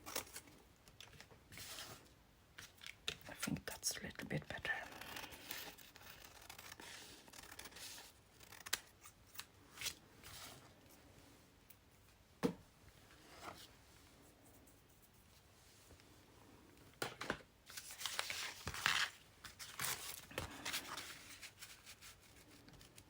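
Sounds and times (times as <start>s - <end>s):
scissors snipping paper: 4.9s - 9.5s
paper rustling: 17.7s - 23.0s.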